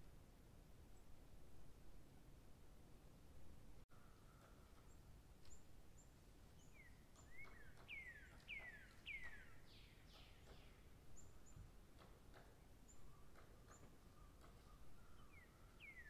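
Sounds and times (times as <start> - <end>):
whistled birdsong falling in pitch: 3.9 - 11.7, 12.4 - 16.0.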